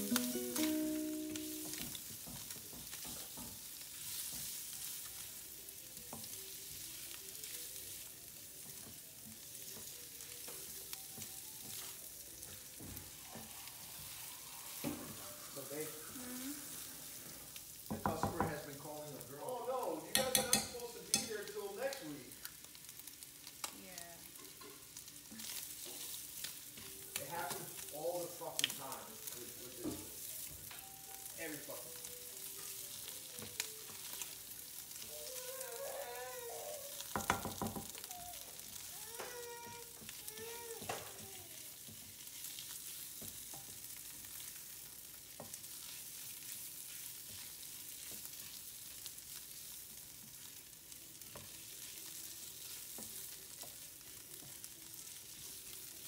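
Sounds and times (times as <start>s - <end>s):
food sizzling in pan: 0.0s - 56.0s
spatula knock on pan: 17.9s - 18.6s, 37.1s - 38.0s.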